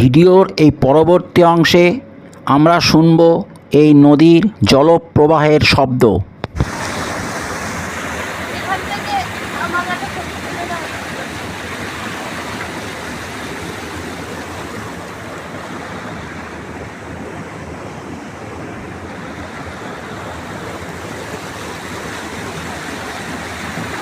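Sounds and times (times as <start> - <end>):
river water rushing over rocks: 6.6 - 24.0.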